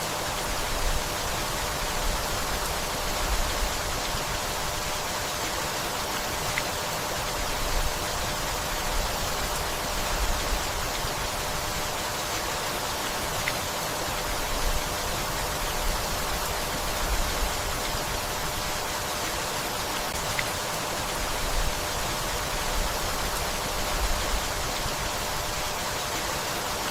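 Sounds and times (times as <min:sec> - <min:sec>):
steady rain hiss: 0:00.0 - 0:26.9
separate raindrops: 0:20.0 - 0:25.3.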